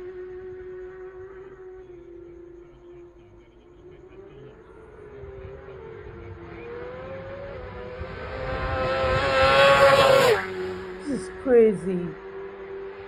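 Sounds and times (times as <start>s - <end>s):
racing motorcycle engine at high revs: 0.0s - 2.6s, 3.8s - 13.0s.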